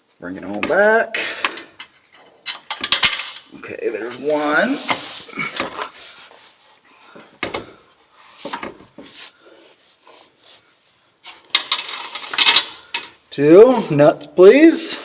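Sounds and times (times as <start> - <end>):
metal bolts clicking and scraping: 0.6 - 3.7, 11.4 - 13.2.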